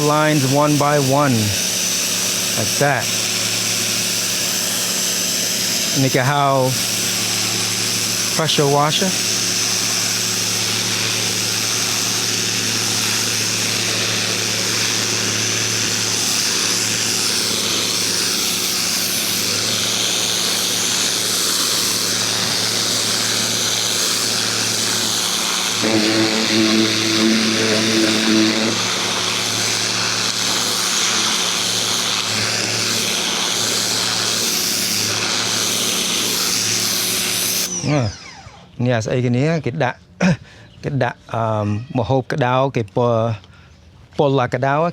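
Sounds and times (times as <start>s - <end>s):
water jet hissing on wood: 0.0s - 37.7s
pressure washer motor hum: 0.0s - 38.8s
high pitched tone: 25.8s - 29.5s.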